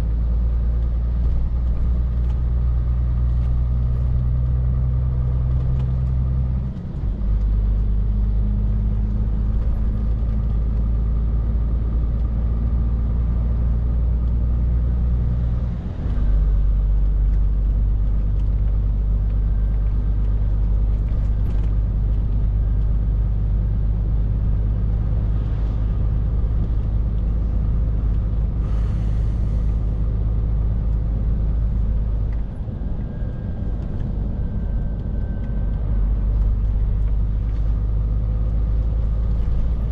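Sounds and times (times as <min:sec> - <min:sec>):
lorry diesel engine droning: 0:00.0 - 0:39.9.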